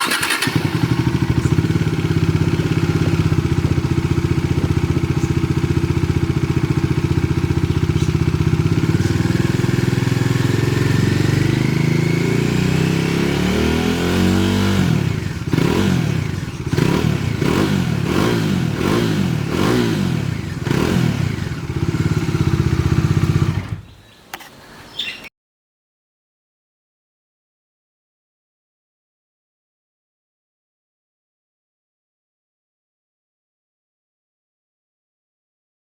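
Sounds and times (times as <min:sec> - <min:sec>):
motorcycle engine idling and revving: 0:00.0 - 0:24.0.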